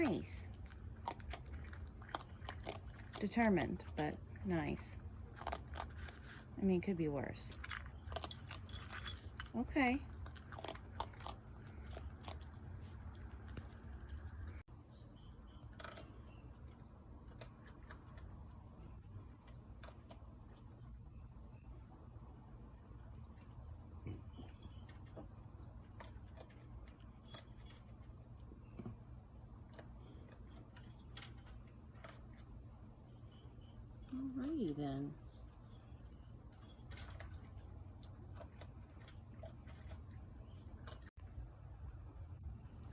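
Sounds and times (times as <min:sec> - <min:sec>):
crickets trilling: 0:00.0 - 0:42.9.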